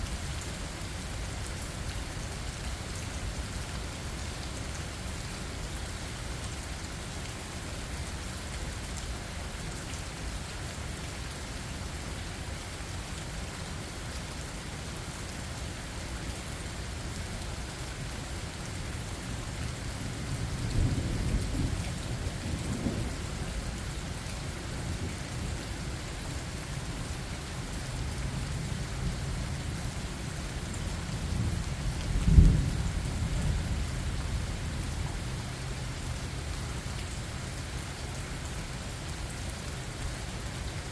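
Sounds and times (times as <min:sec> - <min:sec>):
steady rain: 0:00.0 - 0:40.9
thunder rumbling: 0:20.5 - 0:23.4, 0:31.4 - 0:34.5.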